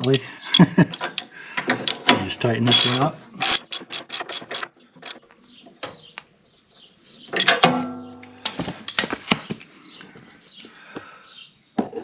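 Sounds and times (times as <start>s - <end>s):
tools clicking and knocking: 0.0s - 5.2s, 7.3s - 9.2s
birds chirping: 0.0s - 8.2s, 8.8s - 12.0s
metallic clank with ringing: 7.4s - 8.5s.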